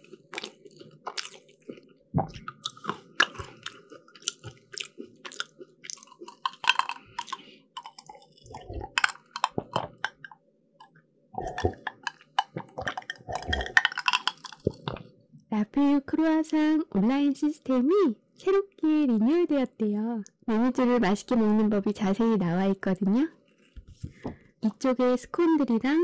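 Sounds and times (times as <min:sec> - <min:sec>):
chewing crunchy pastry: 0:00.0 - 0:15.2, 0:23.4 - 0:23.8.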